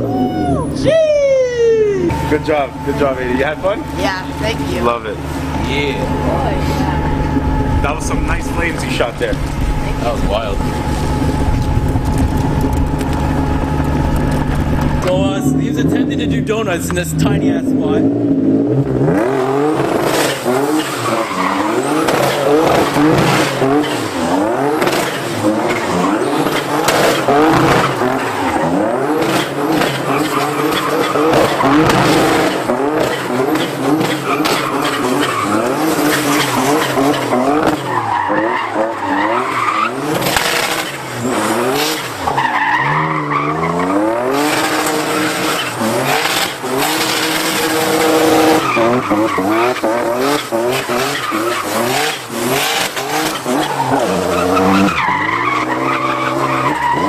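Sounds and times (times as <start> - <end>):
car engine revving: 0.0 - 57.0
tyres squealing: 20.2 - 57.0.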